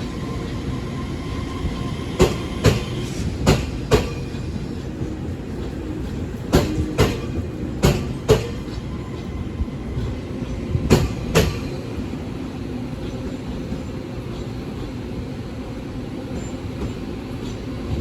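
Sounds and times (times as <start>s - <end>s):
train wheels clacking: 0.0s - 12.3s
train rumble: 0.0s - 18.0s.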